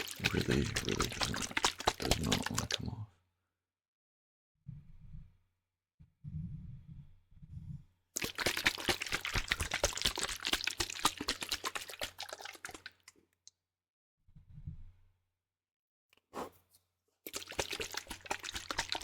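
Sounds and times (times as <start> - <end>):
liquid sloshing in spray bottle: 0.0 - 2.8, 8.2 - 13.1, 17.3 - 19.0.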